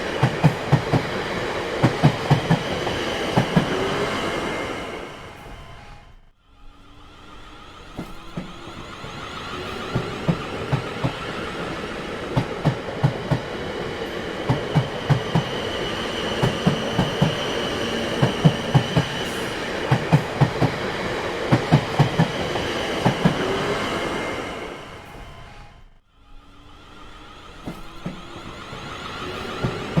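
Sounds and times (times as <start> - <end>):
train wheels clacking over rail joints: 0.0 - 3.9, 7.9 - 23.6.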